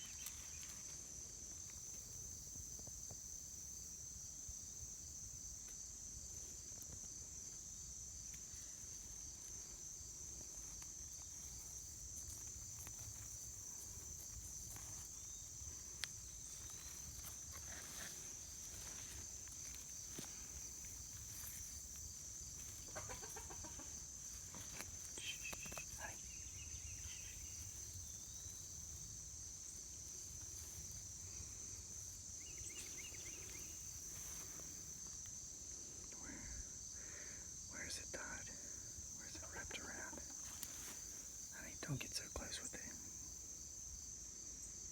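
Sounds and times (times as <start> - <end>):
crickets chirping: 0.0 - 44.9
faint rustling: 8.3 - 35.2.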